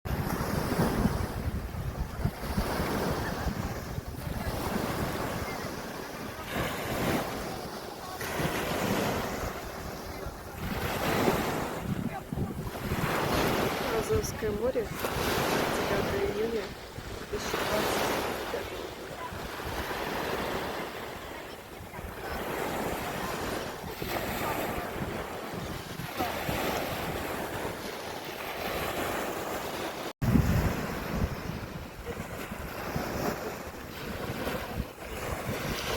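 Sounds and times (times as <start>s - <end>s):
waves washing onto shore: 0.1s - 35.9s
wind buffeting microphone: 0.1s - 35.9s.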